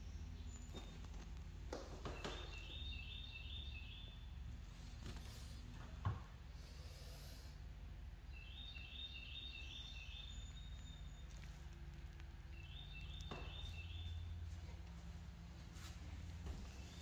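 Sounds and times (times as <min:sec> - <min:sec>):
songbird chirping: 0:00.0 - 0:05.6, 0:08.1 - 0:14.9.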